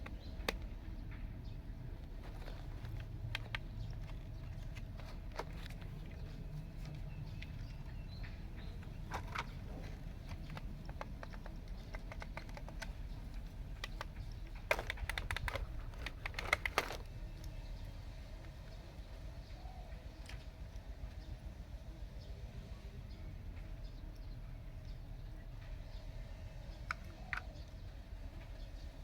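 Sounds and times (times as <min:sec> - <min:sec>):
toy bulldozer clicks and rattles: 0:02.0 - 0:06.3, 0:08.8 - 0:17.5, 0:26.8 - 0:27.8.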